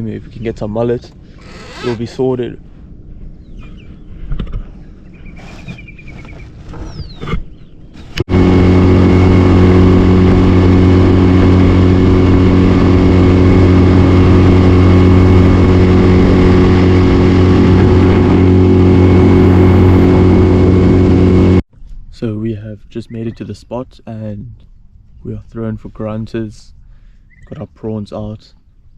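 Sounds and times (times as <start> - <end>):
outboard motor humming: 8.1 - 21.6.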